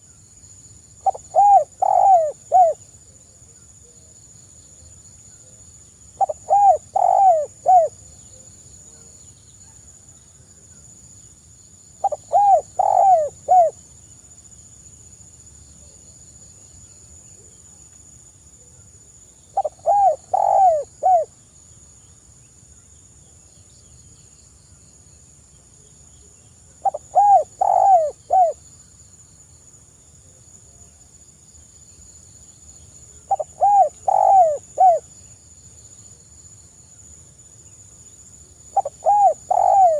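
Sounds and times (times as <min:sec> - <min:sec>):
dove cooing: 0:01.0 - 0:02.8, 0:06.2 - 0:08.0, 0:12.0 - 0:13.8, 0:19.6 - 0:21.3, 0:26.8 - 0:28.6, 0:33.3 - 0:35.1, 0:38.8 - 0:39.9.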